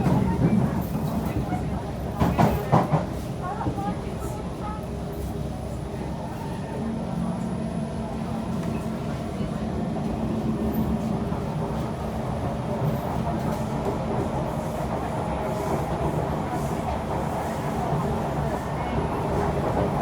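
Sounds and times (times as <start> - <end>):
train wheels rumbling on track: 0.0 - 20.0.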